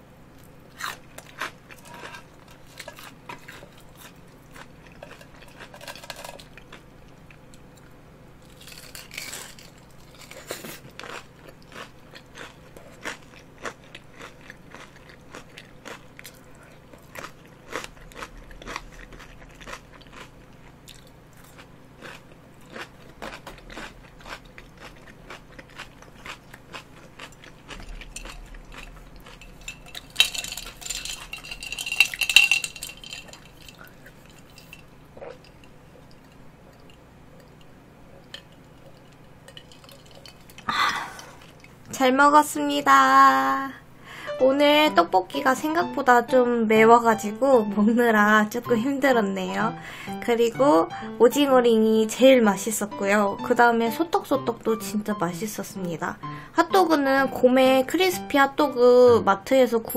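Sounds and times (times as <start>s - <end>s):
person chewing crunchy food: 0.3s - 7.8s, 8.4s - 41.9s.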